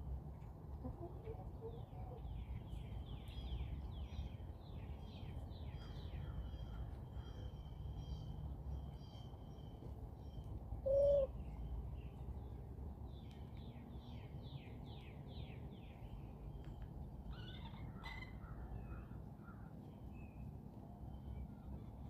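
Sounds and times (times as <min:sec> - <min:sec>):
low hooting bird: 0:10.8 - 0:11.5.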